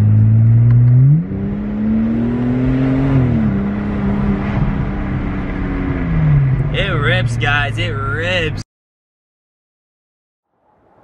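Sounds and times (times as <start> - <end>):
car engine from inside cabin: 0.0 - 8.6.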